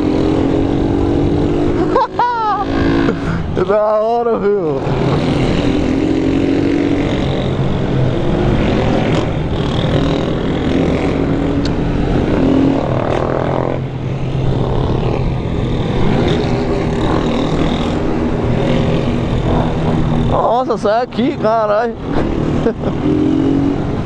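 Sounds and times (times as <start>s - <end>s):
motorcycle engine running: 4.8s - 20.8s.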